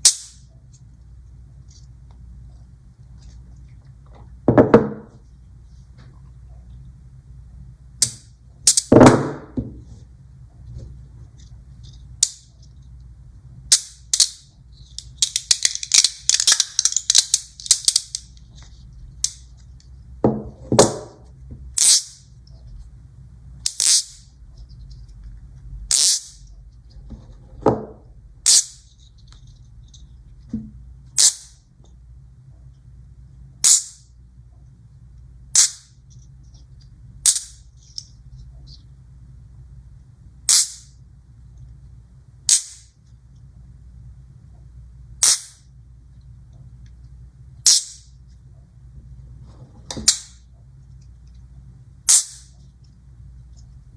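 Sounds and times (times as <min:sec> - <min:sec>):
magnet balls snapping together: 0:00.0 - 0:00.5, 0:08.0 - 0:09.1, 0:12.2 - 0:12.5, 0:13.7 - 0:18.5, 0:19.2 - 0:19.9, 0:21.8 - 0:22.2, 0:23.7 - 0:24.3, 0:25.9 - 0:26.4, 0:28.5 - 0:28.9, 0:31.2 - 0:31.6, 0:33.6 - 0:34.1, 0:35.5 - 0:36.0, 0:37.2 - 0:38.1, 0:40.5 - 0:41.0, 0:42.5 - 0:43.0, 0:45.2 - 0:45.7, 0:47.6 - 0:48.1, 0:50.0 - 0:50.5, 0:52.1 - 0:52.6.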